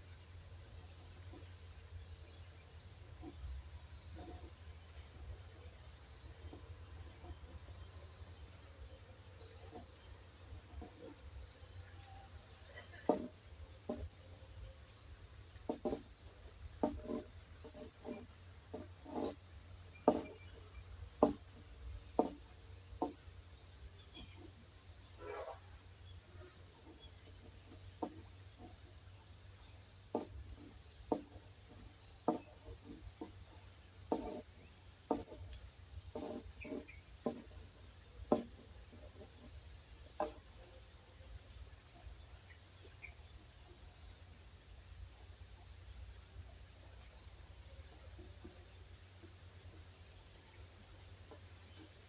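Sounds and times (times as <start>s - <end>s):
cricket trilling: 0.0s - 52.0s.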